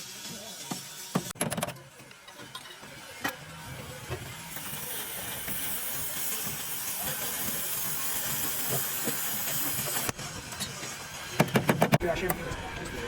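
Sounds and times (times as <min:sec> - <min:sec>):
compressed air hissing: 0:04.6 - 0:10.2.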